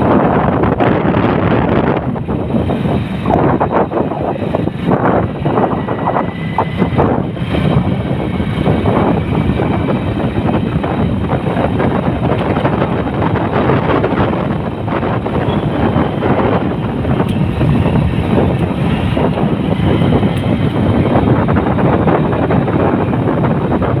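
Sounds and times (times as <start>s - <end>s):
vehicle rumble: 0.0s - 24.0s
wind buffeting microphone: 0.0s - 24.0s.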